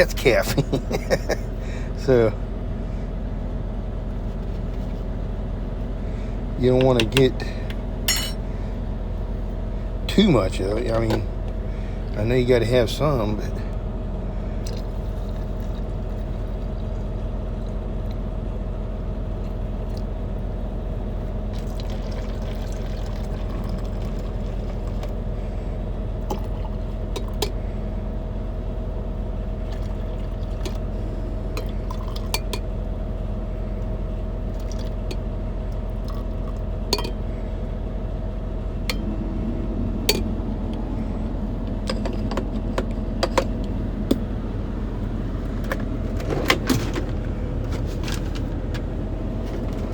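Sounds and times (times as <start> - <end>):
steady low hum: 0.0 - 49.9
spoon clinking against cup: 8.1 - 8.4
liquid pouring into cup: 21.5 - 25.1, 31.6 - 32.5, 34.6 - 35.0.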